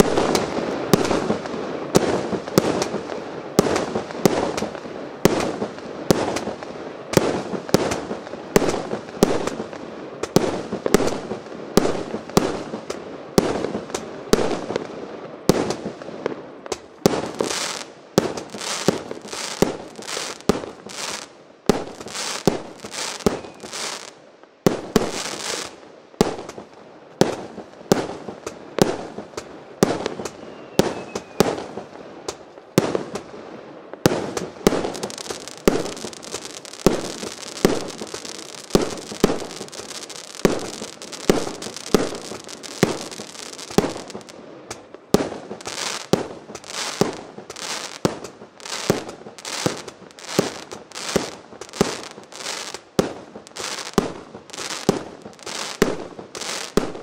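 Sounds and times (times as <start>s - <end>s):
firework shells bursting: 17.2s - 24.1s, 34.1s - 57.0s
high hiss: 17.2s - 24.2s, 34.4s - 44.9s, 45.5s - 56.9s.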